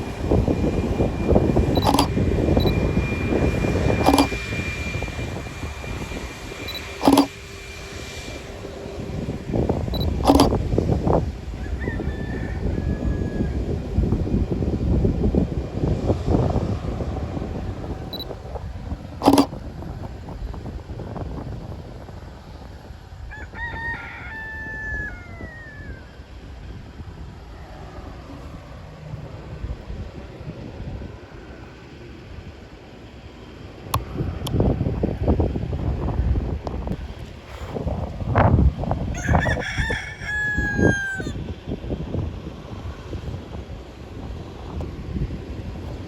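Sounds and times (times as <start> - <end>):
high whine: 0.0 - 11.8
aircraft engine rumble: 0.0 - 39.2, 41.0 - 46.0
sharp clicks: 1.8 - 2.8, 4.0 - 4.4, 6.7 - 7.3, 10.0 - 10.5, 19.2 - 19.5
rooster crowing: 11.4 - 13.8, 23.2 - 26.2, 39.0 - 41.4.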